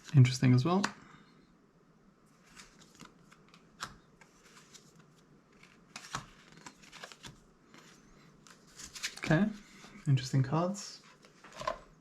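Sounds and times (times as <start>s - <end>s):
cards sliding and flicking: 2.5s - 9.3s.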